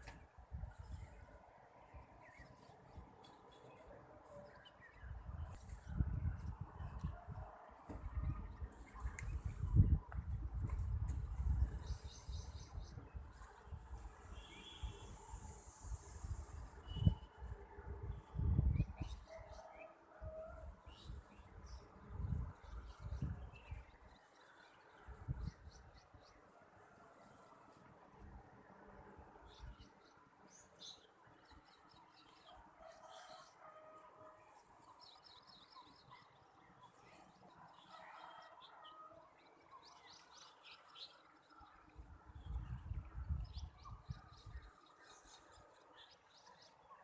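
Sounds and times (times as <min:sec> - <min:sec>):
small birds chirping: 0:34.5 - 0:38.8.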